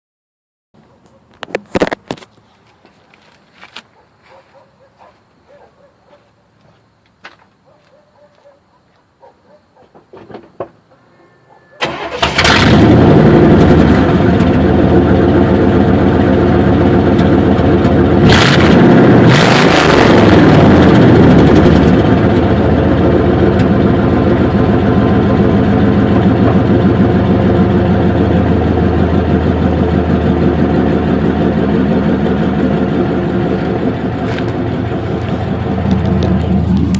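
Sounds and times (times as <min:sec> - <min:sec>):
car engine starting and idling: 0:11.8 - 0:36.9
car engine revving: 0:11.9 - 0:36.9.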